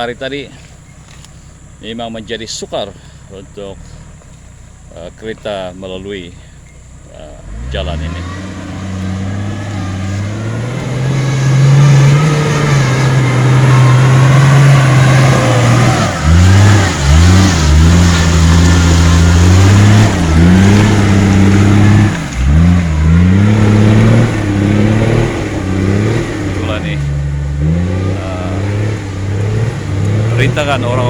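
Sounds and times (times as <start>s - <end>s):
vehicle engine revving hard: 7.3s - 31.0s.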